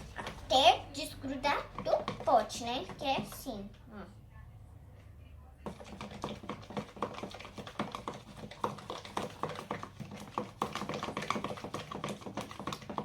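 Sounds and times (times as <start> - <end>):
spoon stirring wet slime: 0.0 - 3.6, 5.6 - 13.0
spoon tapping plastic pot: 5.6 - 13.0.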